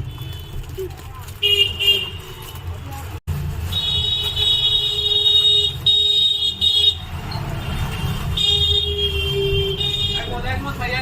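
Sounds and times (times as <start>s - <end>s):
road traffic rumble: 0.0s - 11.0s
vehicle horns honking: 1.4s - 2.7s, 3.7s - 10.6s.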